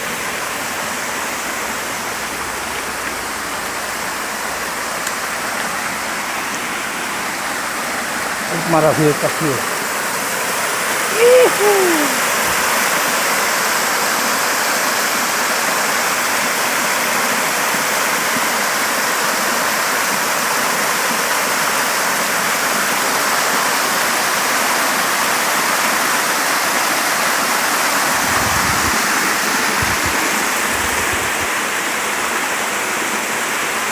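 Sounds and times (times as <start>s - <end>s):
waterfall rushing: 0.0s - 33.9s
wind buffeting microphone: 28.1s - 31.5s.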